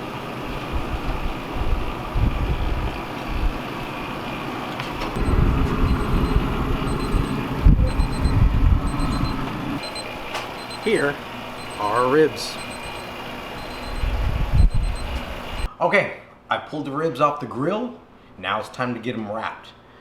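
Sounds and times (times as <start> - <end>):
wind buffeting microphone: 0.8 - 3.6, 5.2 - 9.2, 14.0 - 15.3
steady low hum: 4.8 - 15.7.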